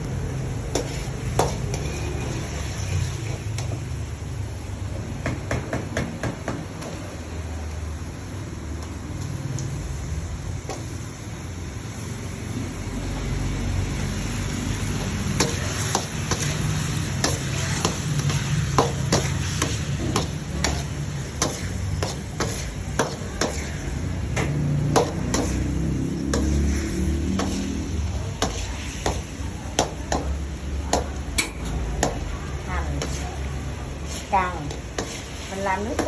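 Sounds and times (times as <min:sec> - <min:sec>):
food frying in a pan: 0:00.0 - 0:36.0
utensil tapping against pan: 0:17.2 - 0:23.7, 0:24.3 - 0:25.6, 0:28.4 - 0:32.3.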